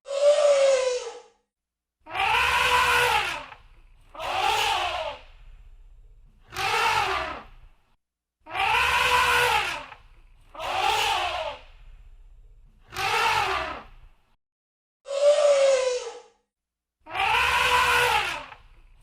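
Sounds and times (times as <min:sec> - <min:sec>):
elephant trumpeting: 0:02.1 - 0:05.2, 0:06.5 - 0:07.5, 0:08.5 - 0:11.6, 0:12.9 - 0:13.9, 0:17.1 - 0:18.6
low rumbling noise: 0:05.2 - 0:06.5, 0:11.6 - 0:12.8.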